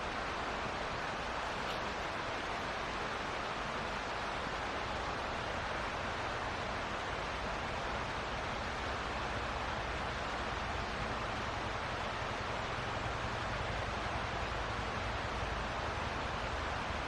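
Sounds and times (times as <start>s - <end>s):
creek water flowing: 0.0s - 17.0s.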